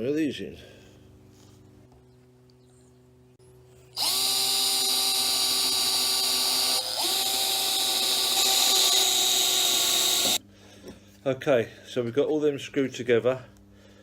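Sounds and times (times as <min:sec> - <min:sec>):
power drill driving screws: 0:03.9 - 0:10.4.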